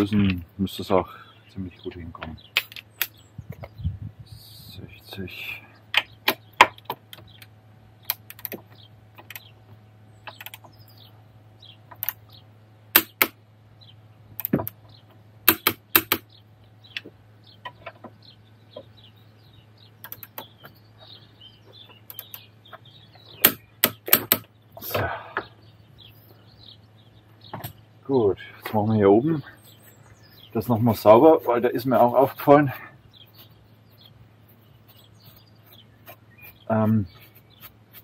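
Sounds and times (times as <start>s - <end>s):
faint steady hum: 0.0s - 38.0s
metallic clicks of hand tools: 23.4s - 24.5s
scraping rustle: 29.5s - 38.0s.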